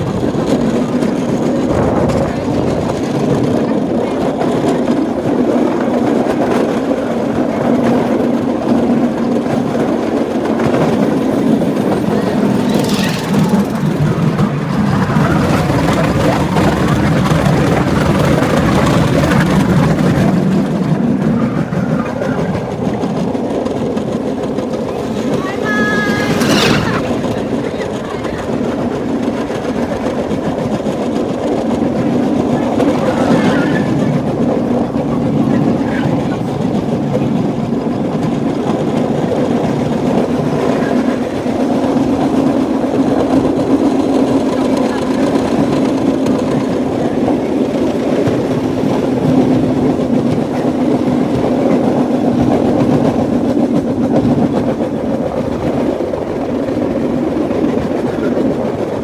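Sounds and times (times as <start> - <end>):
small engine running: 0.0 - 59.0
wheels clattering over track: 0.0 - 59.0.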